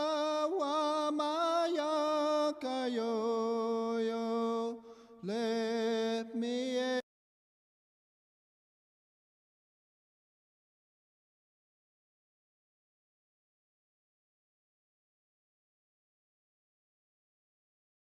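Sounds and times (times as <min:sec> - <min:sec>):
person chanting with vibrato: 0:00.0 - 0:07.0.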